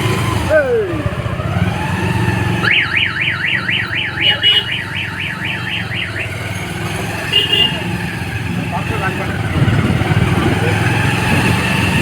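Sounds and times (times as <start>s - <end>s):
motorcycle engine humming: 0.0s - 12.0s
electronic warbling siren: 1.8s - 7.3s.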